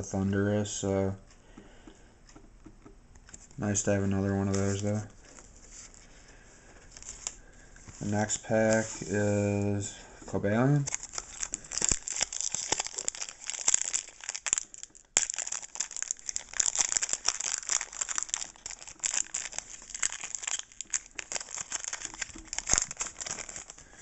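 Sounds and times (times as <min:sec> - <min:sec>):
foil wrapper crinkling: 0:10.8 - 0:24.0.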